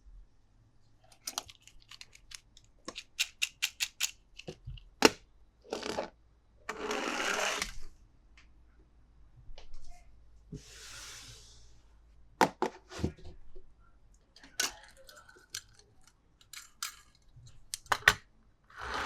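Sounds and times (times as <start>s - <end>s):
plastic toys clicking: 1.1s - 4.8s, 14.5s - 18.2s.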